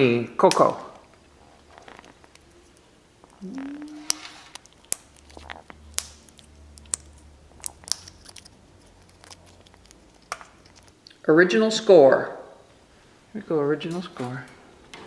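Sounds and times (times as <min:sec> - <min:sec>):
parrot cracking a seed: 0:00.5 - 0:11.2
low rising parrot call: 0:03.4 - 0:04.4.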